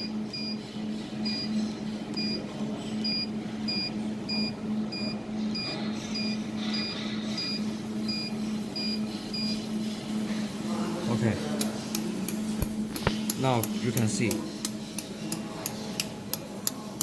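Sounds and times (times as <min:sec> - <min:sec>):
machine low hum: 0:00.0 - 0:17.0.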